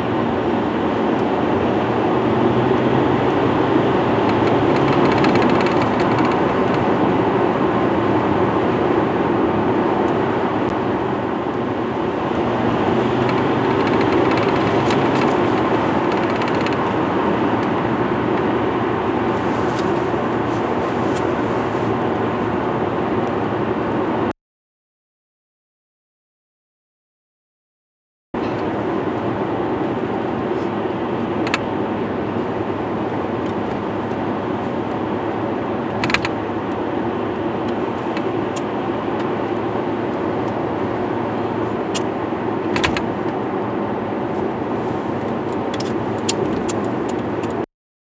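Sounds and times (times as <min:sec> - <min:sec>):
moving vehicle rushing noise: 0:00.0 - 0:24.3.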